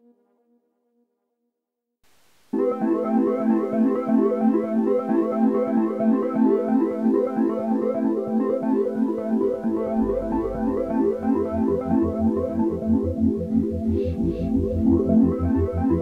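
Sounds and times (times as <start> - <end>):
repeating synthesizer notes: 7.8 - 16.0
low bass pulse: 9.8 - 16.0.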